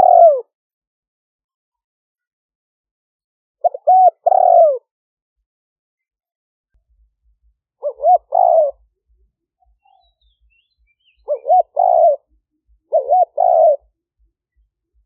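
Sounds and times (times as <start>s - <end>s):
dove cooing: 0.0s - 0.5s, 3.6s - 4.9s, 7.8s - 8.9s, 11.2s - 14.0s.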